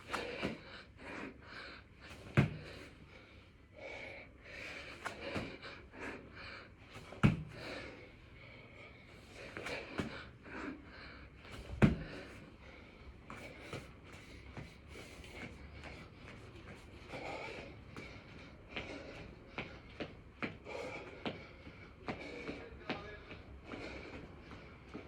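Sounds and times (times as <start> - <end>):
man breathing heavily: 0.0 - 25.0.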